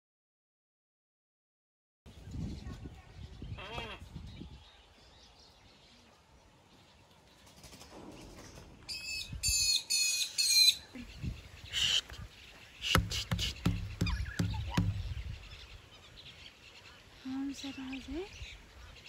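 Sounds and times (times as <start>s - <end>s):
bird chirping: 2.1s - 19.0s
soft low knocks: 12.9s - 15.4s.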